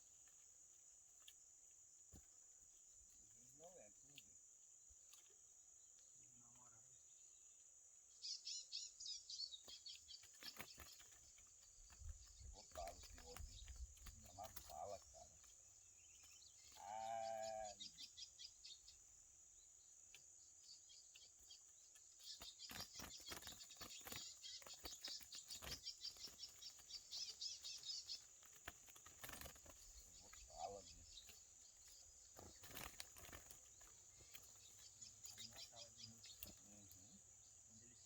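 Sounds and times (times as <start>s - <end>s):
rapid chattering bird trill: 8.2s - 19.2s, 20.6s - 38.0s
low bleat-like animal call: 16.8s - 17.8s.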